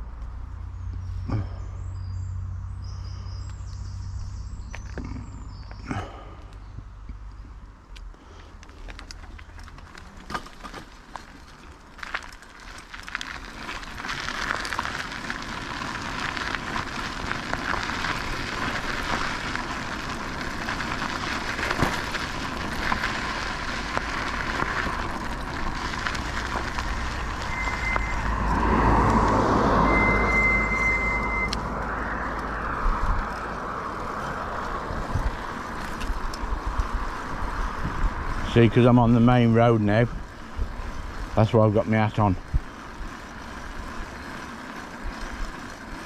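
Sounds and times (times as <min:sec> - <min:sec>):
road traffic passing: 0:00.0 - 0:46.0
heavy vehicle passing close: 0:26.0 - 0:35.8
high steady tones: 0:27.3 - 0:32.5.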